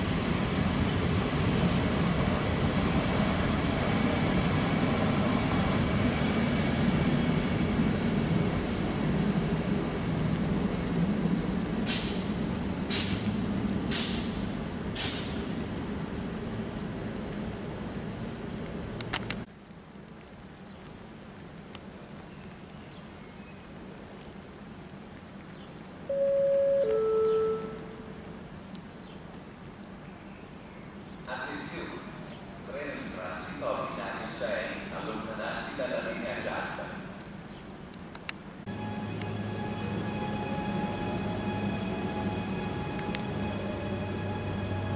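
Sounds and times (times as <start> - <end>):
distant train rumble: 0.0 - 19.7, 38.3 - 44.9
light rain falling: 0.0 - 44.9
faint sharp clicks: 28.6 - 28.9, 37.9 - 38.4.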